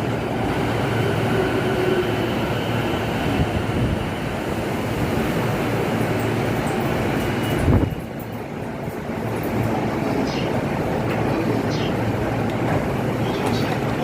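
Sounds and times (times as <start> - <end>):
commuter train: 0.0 - 14.0
wind rumbling on microphone: 7.4 - 8.3.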